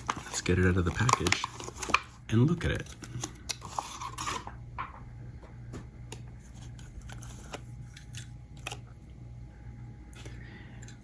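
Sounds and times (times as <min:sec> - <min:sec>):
plastic packaging crackling: 0:00.0 - 0:04.6
steady low hum: 0:00.0 - 0:11.0.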